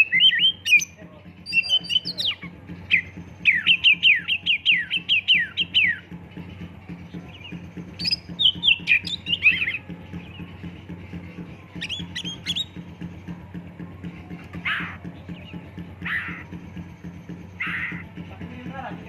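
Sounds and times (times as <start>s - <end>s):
bird singing whistled notes: 0.0s - 6.0s, 7.2s - 10.5s, 11.7s - 12.9s
steady low hum: 0.0s - 19.0s.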